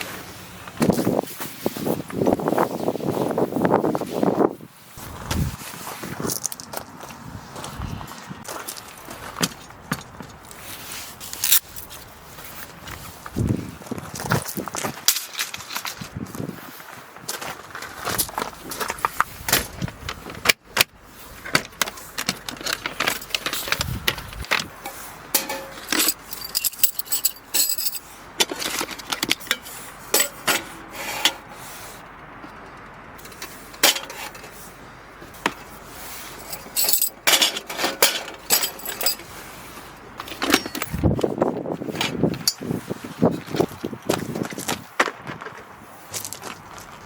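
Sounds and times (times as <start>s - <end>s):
small hard objects clinking: 25.4s - 28.0s, 36.4s - 39.2s.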